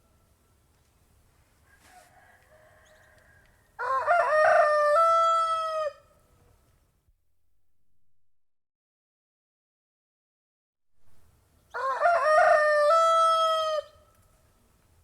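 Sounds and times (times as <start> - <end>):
faint rooster calls: 1.4 - 6.6, 11.7 - 14.4
rooster crowing: 1.6 - 6.1, 11.7 - 14.1.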